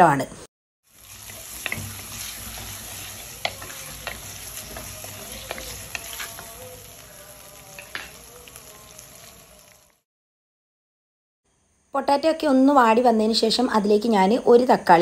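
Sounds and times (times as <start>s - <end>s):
onion and potato sizzling: 0.8s - 10.1s
spoon clicking and scraping pan: 1.2s - 6.6s, 7.8s - 8.1s.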